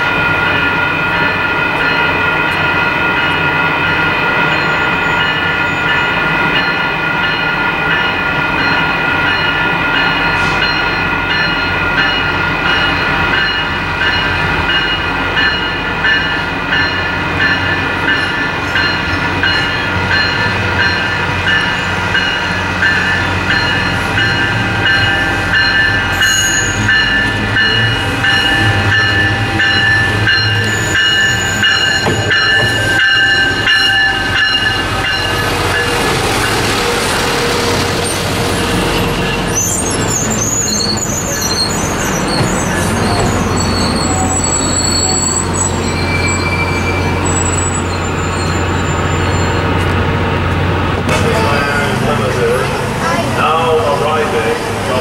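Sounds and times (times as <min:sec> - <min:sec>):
railroad crossing bell ringing: 0:00.0 - 0:50.0
diesel railcar passing: 0:00.0 - 0:55.0
wheel squeals: 0:22.9 - 0:36.0, 0:36.8 - 0:49.9.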